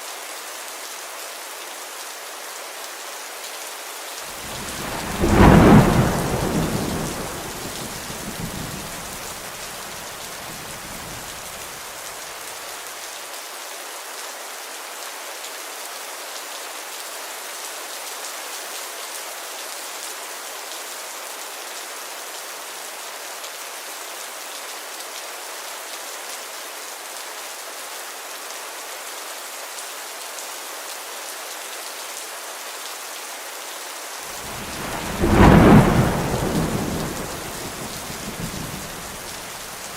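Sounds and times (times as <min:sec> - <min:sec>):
steady rain hiss: 0:00.0 - 0:39.9
thunder rumble: 0:04.3 - 0:11.8, 0:34.4 - 0:39.9.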